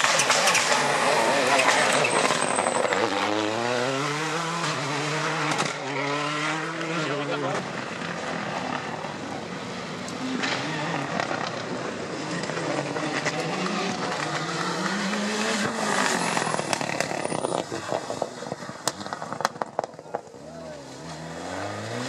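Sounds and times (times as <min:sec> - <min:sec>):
rally car engine revving: 0:00.0 - 0:22.0
exhaust crackles and pops: 0:10.0 - 0:21.2.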